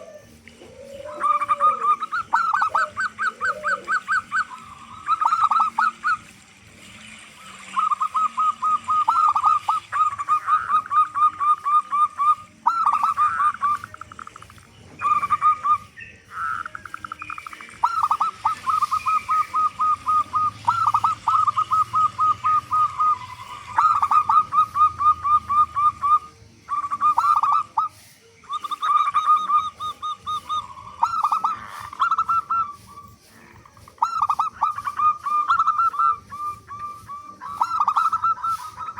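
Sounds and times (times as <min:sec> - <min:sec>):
doves cooing: 0:00.0 - 0:38.9.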